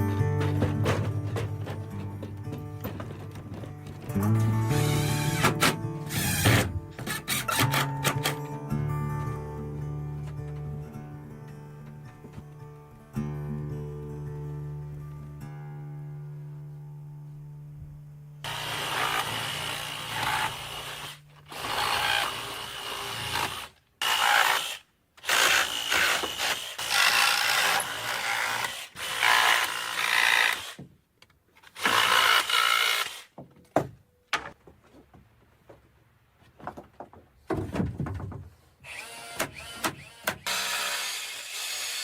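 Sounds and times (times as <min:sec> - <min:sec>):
knocks and rubbing: 0:00.0 - 0:04.4, 0:33.4 - 0:38.6
power tool cutting wood: 0:04.7 - 0:07.9, 0:18.5 - 0:24.8, 0:38.9 - 0:42.0.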